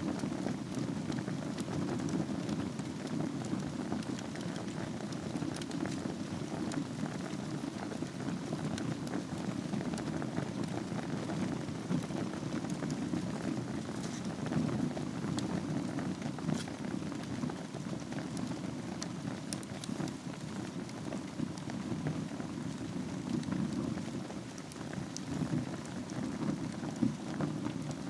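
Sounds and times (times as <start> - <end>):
fire crackling and popping: 0.0 - 28.0
fire flames rushing: 0.0 - 28.0.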